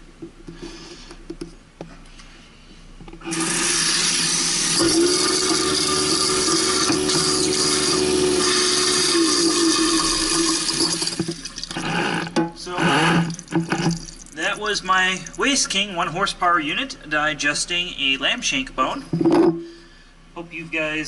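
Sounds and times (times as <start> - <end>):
garbage disposal humming: 3.0 - 16.9
tap water pouring into sink: 3.4 - 12.4, 13.1 - 14.4.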